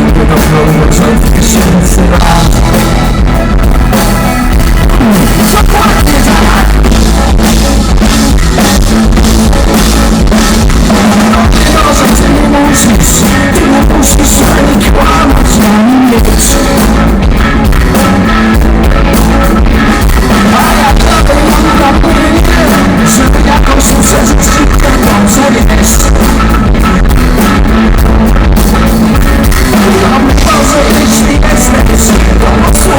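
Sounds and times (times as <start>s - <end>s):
man singing: 0.0s - 3.4s, 4.8s - 7.7s, 10.8s - 17.1s, 19.9s - 26.9s, 29.2s - 32.9s
drum kit: 0.0s - 32.9s
rock band playing: 0.0s - 32.9s.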